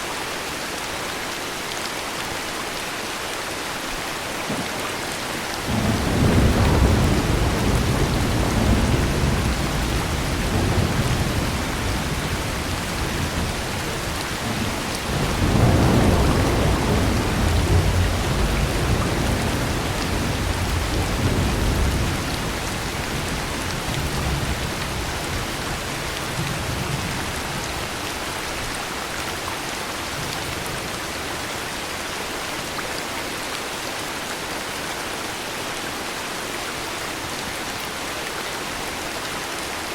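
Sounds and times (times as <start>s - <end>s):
heavy rain: 0.0s - 39.9s
thunder rumbling: 4.6s - 27.8s.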